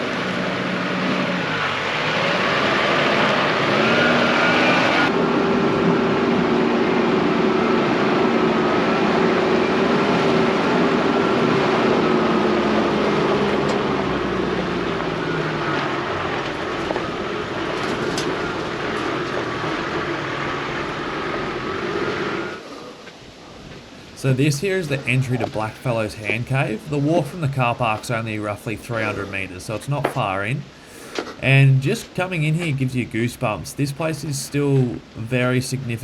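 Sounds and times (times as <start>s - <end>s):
vehicle engine running: 0.0s - 22.6s
tyre and road noise: 0.0s - 36.0s.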